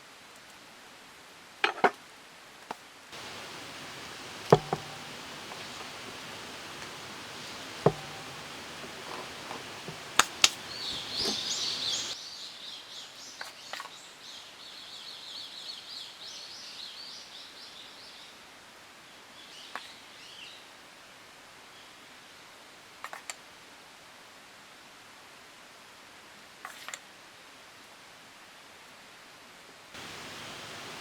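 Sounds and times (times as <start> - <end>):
sharp knocks: 3.2 - 12.2
steady hiss: 3.2 - 12.2, 30.0 - 31.0
songbird chirping: 3.2 - 17.8, 30.0 - 31.0.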